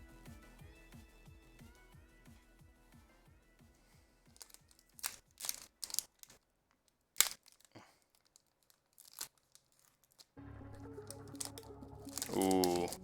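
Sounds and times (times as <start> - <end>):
faint electronic music: 0.0 - 4.9, 10.4 - 13.0
foil wrapper tearing and crinkling: 4.3 - 13.0.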